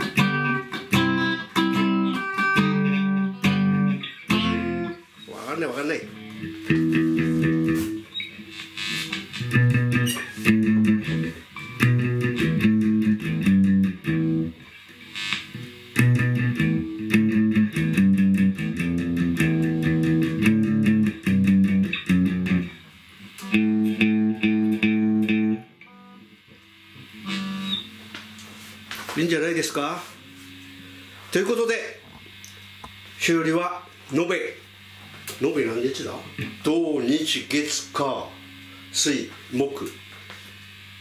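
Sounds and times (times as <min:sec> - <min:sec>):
electric guitar strumming chords: 0:00.0 - 0:31.7, 0:34.7 - 0:41.0.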